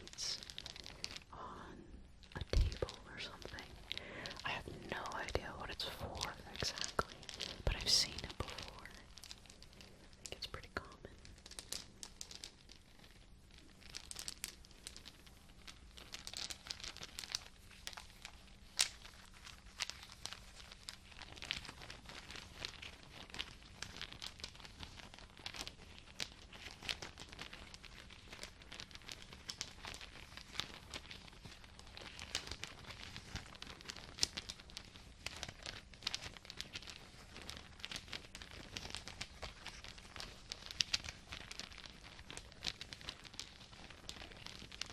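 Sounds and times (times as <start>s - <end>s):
crinkly material crumpling: 0.0s - 44.9s.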